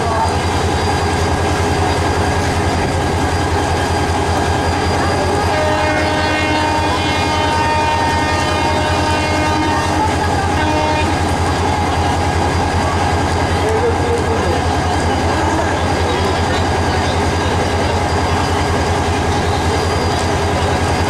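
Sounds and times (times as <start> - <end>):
train horn blast: 5.4 - 11.3.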